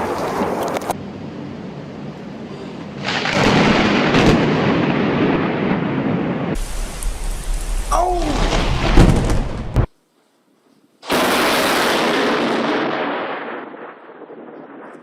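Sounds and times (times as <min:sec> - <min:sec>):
rain: 0:00.0 - 0:09.9, 0:11.0 - 0:15.0
thunder crack and rumble: 0:03.0 - 0:09.9, 0:11.1 - 0:15.0.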